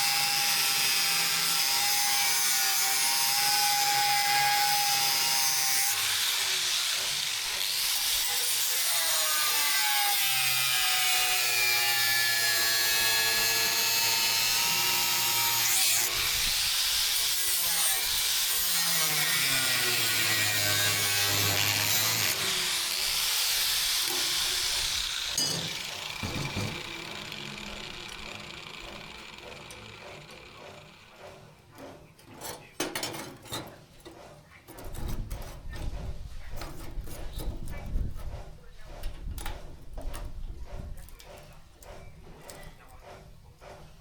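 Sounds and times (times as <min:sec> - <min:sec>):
power tool cutting: 0:00.0 - 0:31.4.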